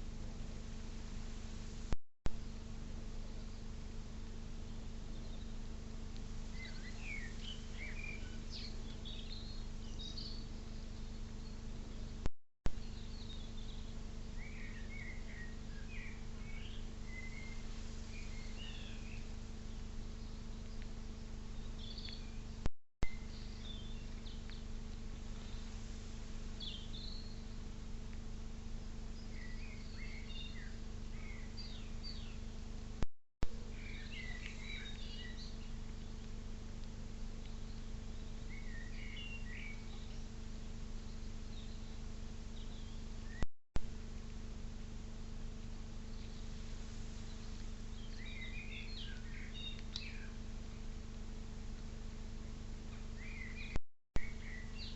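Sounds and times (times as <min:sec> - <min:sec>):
steady low hum: 0:00.0 - 0:54.9
small birds chirping: 0:03.2 - 0:27.7, 0:29.1 - 0:32.8, 0:33.6 - 0:43.4, 0:44.4 - 0:51.1, 0:51.8 - 0:54.9
click: 0:49.7 - 0:50.1.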